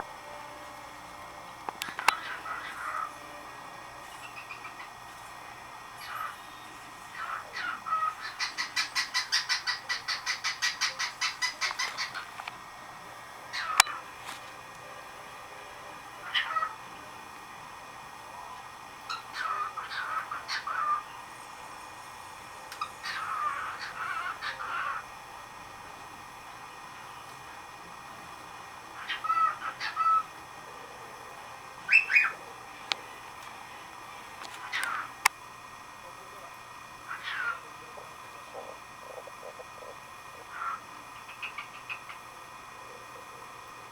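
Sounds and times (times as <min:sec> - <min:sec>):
cockatiel whistling song: 0:04.1 - 0:04.9, 0:31.8 - 0:32.4
cockatiel whistling: 0:31.8 - 0:32.4.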